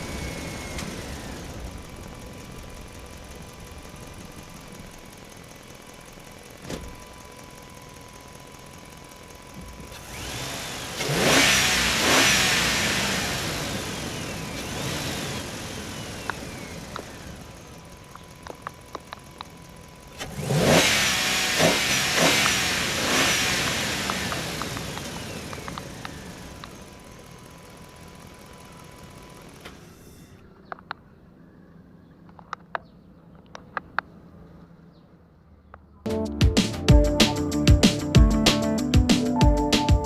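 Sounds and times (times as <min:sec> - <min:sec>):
motor spinning up and winding down: 0:00.0 - 0:02.2, 0:09.6 - 0:17.9, 0:20.2 - 0:27.0
clicks: 0:18.1 - 0:19.6, 0:24.0 - 0:26.8, 0:30.6 - 0:31.1, 0:32.2 - 0:34.2.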